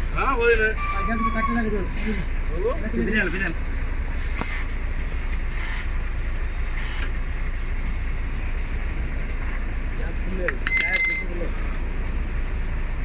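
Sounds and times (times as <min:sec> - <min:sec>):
diesel engine deep rumble: 0:00.0 - 0:13.0
hiss: 0:04.2 - 0:04.8, 0:05.5 - 0:05.9, 0:06.7 - 0:07.2.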